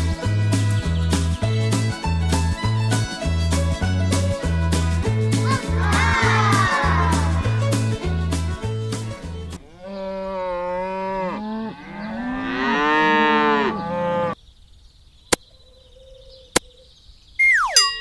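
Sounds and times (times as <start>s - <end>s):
cow mooing: 9.6s - 14.4s
falling ding: 17.4s - 18.0s.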